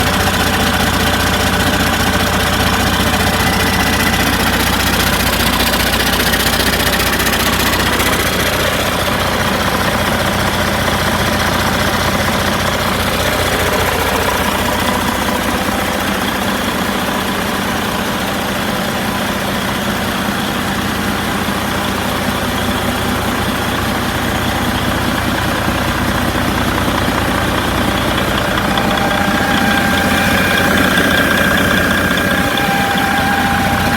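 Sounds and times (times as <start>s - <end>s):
diesel engine idling: 0.0s - 33.9s.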